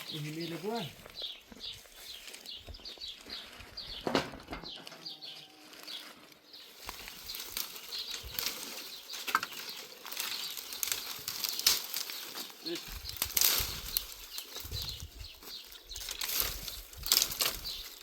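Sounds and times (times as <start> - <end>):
bird chirping: 0.0 - 18.0
rustling: 0.0 - 18.0.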